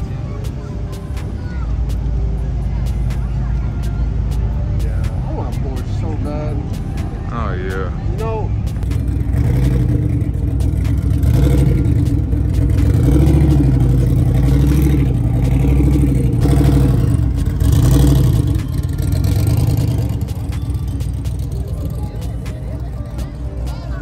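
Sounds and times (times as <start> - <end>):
drag car engine running unsteady: 8.8 - 23.2.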